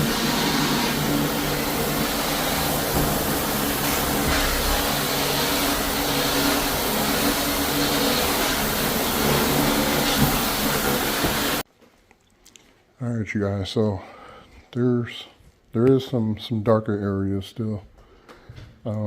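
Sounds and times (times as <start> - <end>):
floor-cleaning machine running: 0.0 - 11.6.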